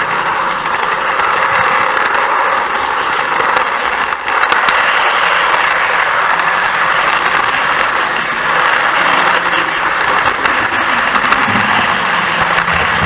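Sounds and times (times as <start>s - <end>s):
train clicks: 0.0s - 13.0s
train rushing noise: 0.0s - 13.0s.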